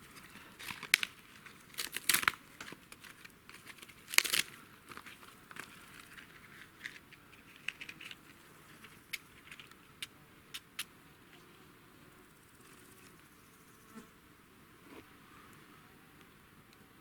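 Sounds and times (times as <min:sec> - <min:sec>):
small objects clicking and knocking: 0:00.2 - 0:10.9.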